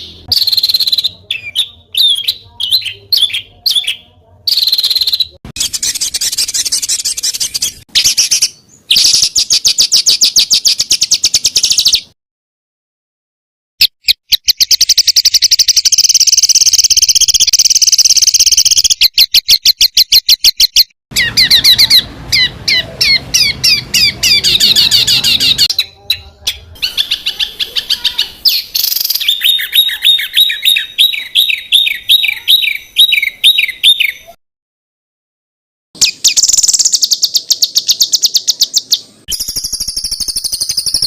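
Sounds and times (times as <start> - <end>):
songbirds calling: 0.0 - 12.2, 14.3 - 34.4.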